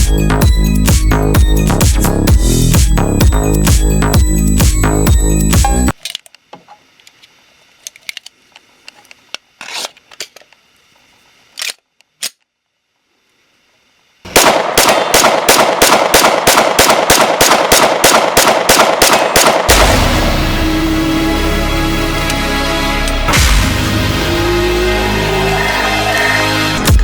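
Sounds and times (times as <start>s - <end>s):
loud continuous sound: 14.2s - 27.0s
rapid loud sharp bangs: 14.3s - 20.6s.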